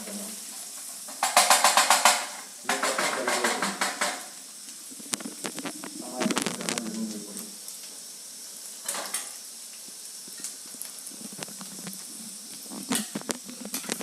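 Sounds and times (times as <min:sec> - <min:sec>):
paste sizzling in hot oil: 0:00.0 - 0:14.0
spoon scraping and knocking pan: 0:01.0 - 0:04.3, 0:11.3 - 0:14.0.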